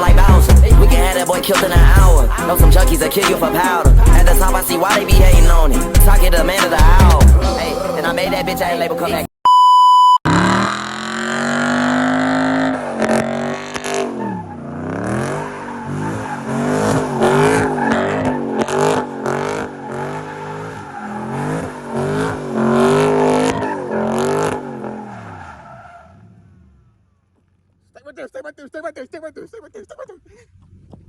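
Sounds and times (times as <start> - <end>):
car engine revving hard: 0.0 - 7.5, 10.3 - 27.0.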